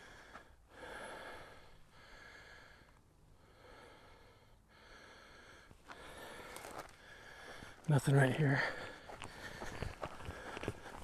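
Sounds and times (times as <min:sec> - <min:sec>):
person breathing faintly: 0:00.0 - 0:11.0.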